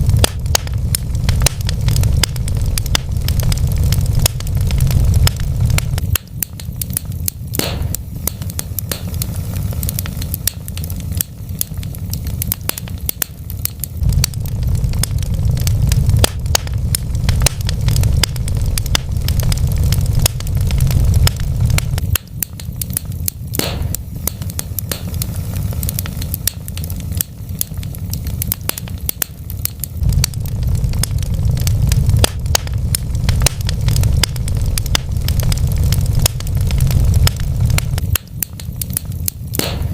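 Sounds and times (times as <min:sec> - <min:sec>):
steady low rumble: 0:00.0 - 0:39.9
wood fire crackling and popping: 0:00.0 - 0:39.9
loud snaps: 0:00.2 - 0:32.8, 0:33.4 - 0:39.9.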